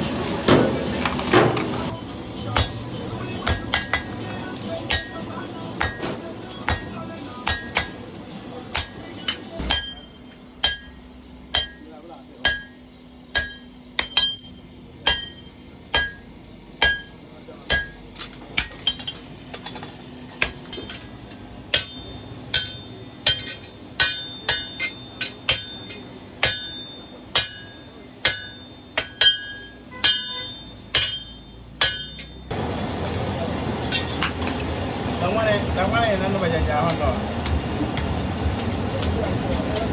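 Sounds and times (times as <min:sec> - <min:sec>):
hammer striking metal on anvil: 0:00.5 - 0:01.9, 0:02.5 - 0:32.5.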